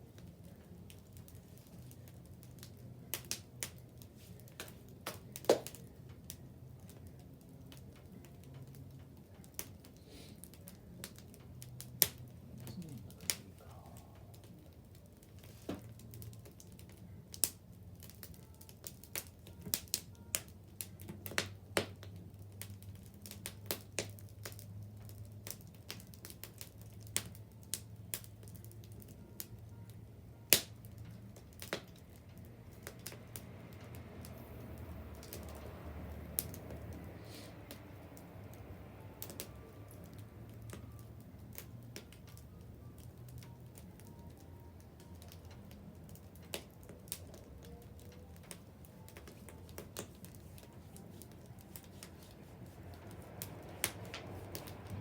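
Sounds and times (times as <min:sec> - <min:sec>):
faint low hum: 0:00.0 - 0:26.5
wood bonfire crackling: 0:00.0 - 0:55.0.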